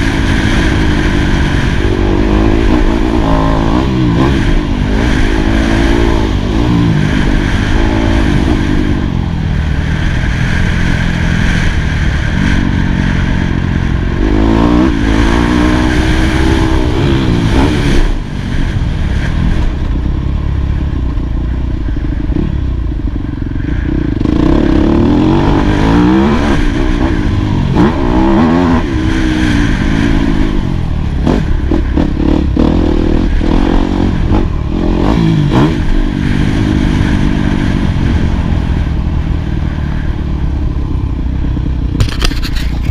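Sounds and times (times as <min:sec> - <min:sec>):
motorbike rattling and clatter: 0:00.0 - 0:42.9
motocross engine revving: 0:11.5 - 0:18.3.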